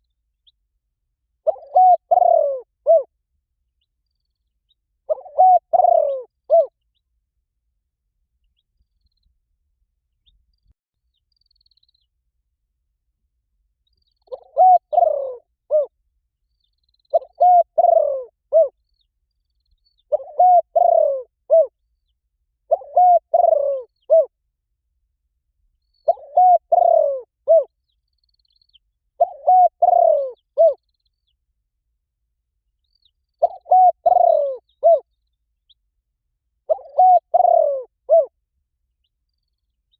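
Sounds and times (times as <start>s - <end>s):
dove cooing: 1.4s - 3.1s, 5.1s - 6.7s, 14.3s - 15.9s, 17.1s - 18.8s, 20.1s - 21.7s, 22.7s - 24.3s, 26.1s - 27.7s, 29.2s - 30.8s, 33.4s - 35.1s, 36.7s - 38.4s.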